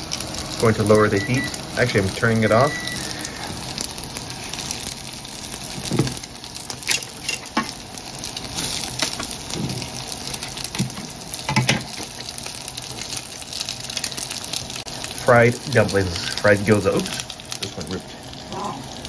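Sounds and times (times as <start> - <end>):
dumplings sizzling in a pan: 0.0 - 19.0
utensils tapping and scraping pan: 5.8 - 7.8, 8.6 - 12.3.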